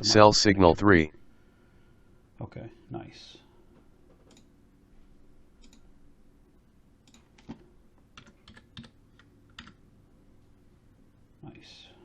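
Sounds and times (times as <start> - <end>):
computer keyboard keys tapping: 7.1 - 9.8.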